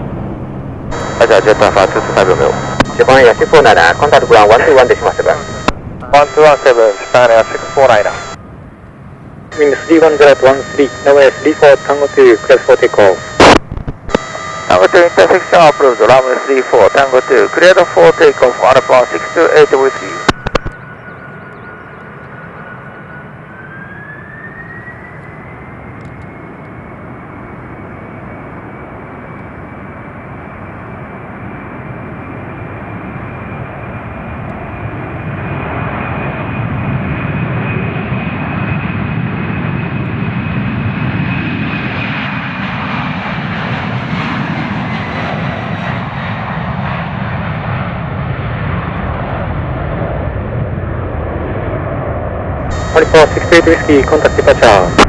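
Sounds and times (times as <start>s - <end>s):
jet engines whining: 0.0s - 55.0s
jet takeoff roar: 0.0s - 55.0s.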